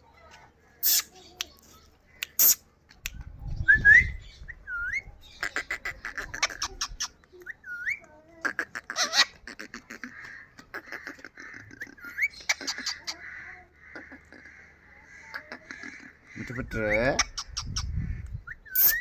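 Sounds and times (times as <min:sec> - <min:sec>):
parrot squawking: 0:05.3 - 0:14.6, 0:15.2 - 0:19.0.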